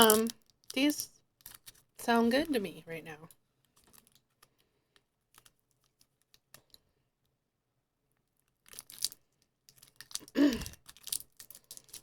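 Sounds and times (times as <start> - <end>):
candy wrapper tearing: 0.0 - 2.0, 8.4 - 12.0
plastic wrapper crinkling: 0.0 - 2.6, 3.2 - 6.8, 8.4 - 12.0.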